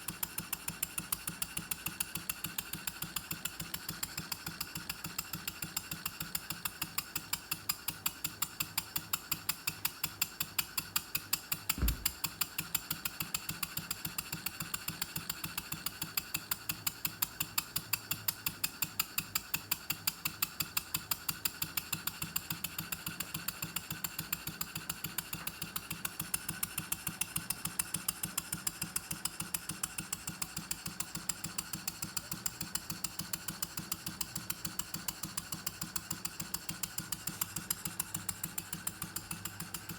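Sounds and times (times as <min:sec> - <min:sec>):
model steam engine ticking: 0:00.0 - 0:39.9
low thump: 0:11.8 - 0:12.2.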